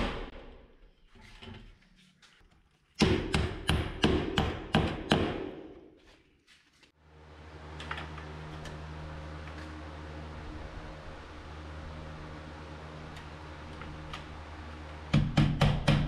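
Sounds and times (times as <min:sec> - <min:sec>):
low motor hum: 0:07.0 - 0:16.0.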